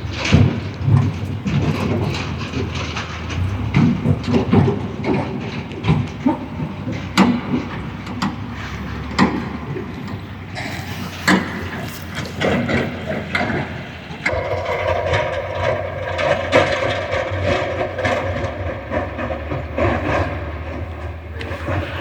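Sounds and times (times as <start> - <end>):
clanks and knocks: 0.0 - 22.0
tractor diesel engine running: 0.0 - 22.0.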